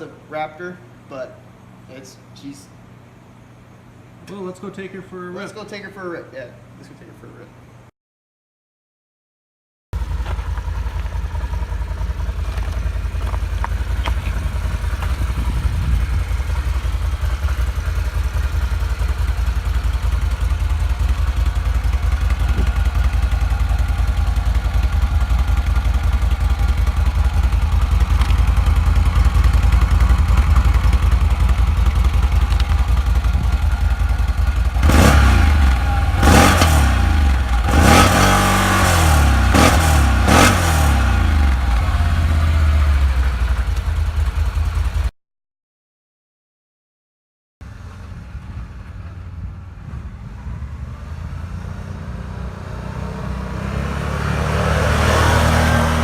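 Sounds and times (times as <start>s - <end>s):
atv engine revving: 10.0s - 44.5s, 49.8s - 56.0s.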